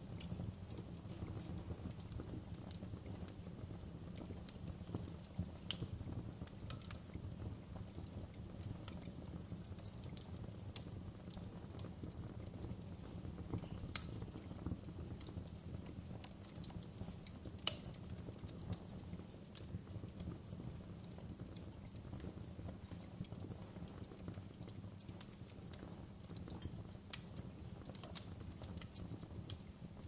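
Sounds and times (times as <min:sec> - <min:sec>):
fire rumbling: 0:00.0 - 0:30.0
wood fire pops and snaps: 0:00.0 - 0:30.0.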